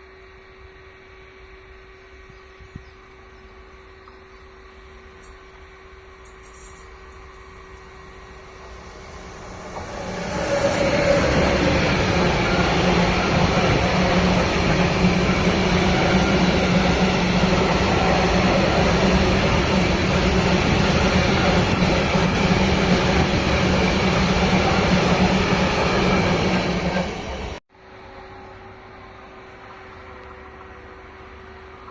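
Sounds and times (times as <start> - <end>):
train wheels rushing on track: 6.2 - 27.6.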